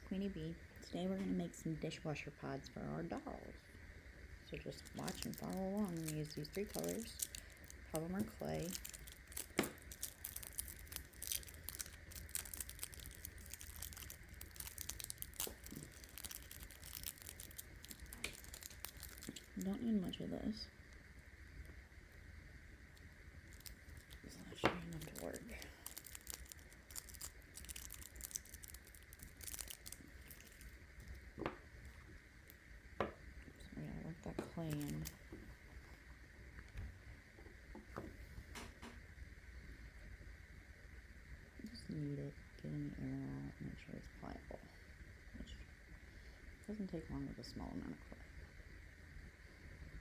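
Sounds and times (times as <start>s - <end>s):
steady low hum: 0.0s - 50.0s
plastic packaging crinkling: 4.5s - 20.6s, 23.0s - 31.3s, 34.3s - 35.2s.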